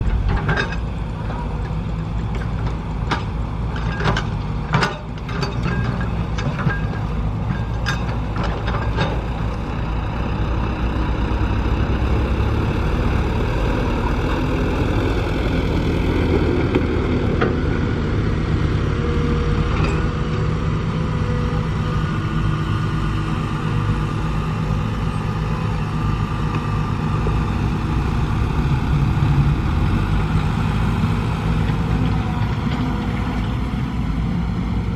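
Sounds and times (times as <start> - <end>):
excavator engine running: 0.0 - 34.9
sharp metal clanks and knocks: 0.1 - 0.9, 1.6 - 9.4.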